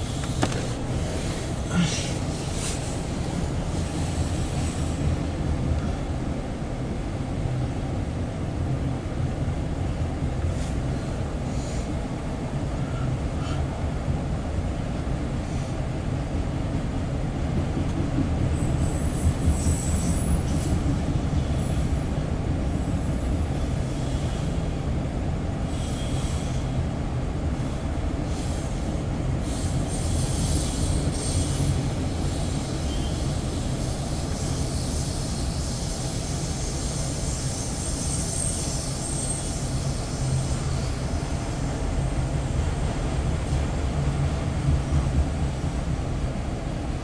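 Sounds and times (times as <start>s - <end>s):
freight train wheels rumbling: 0.0s - 47.0s
high-pitched wheel squeals: 36.6s - 41.0s.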